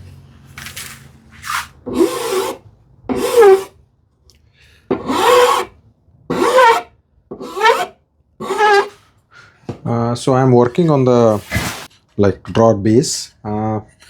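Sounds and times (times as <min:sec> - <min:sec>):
hand file rasping on wood: 0:01.9 - 0:03.7, 0:04.9 - 0:05.7, 0:06.3 - 0:09.0.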